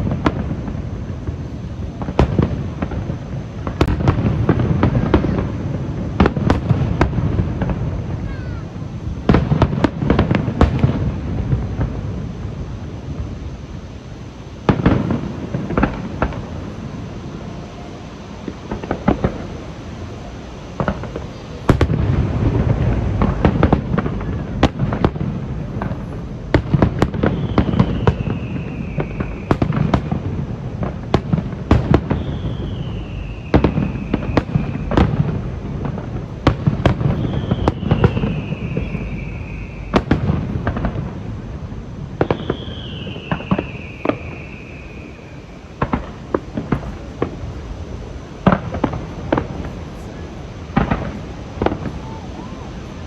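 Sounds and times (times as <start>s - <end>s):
fireworks booming: 0.0s - 53.0s
fireworks crackling pops: 0.0s - 53.0s
firework whistles falling in pitch: 13.5s - 41.3s, 42.1s - 47.7s.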